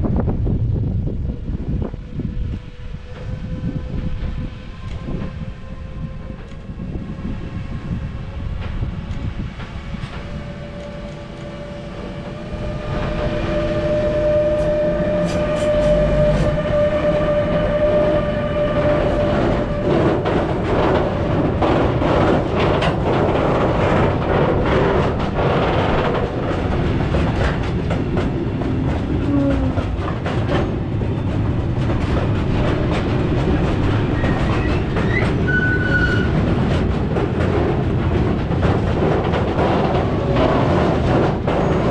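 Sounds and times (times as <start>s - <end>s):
freight train rumbling: 0.0s - 41.9s
wheels clattering over rail joints: 15.0s - 41.9s.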